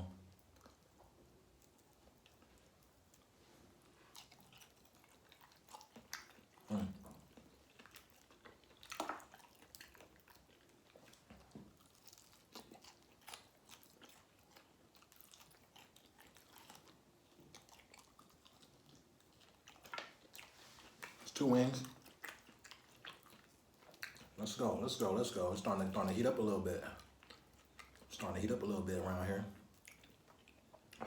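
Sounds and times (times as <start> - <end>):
person chewing wetly: 0.2 - 31.0
sharp chewing clicks: 4.1 - 29.0, 29.6 - 31.0.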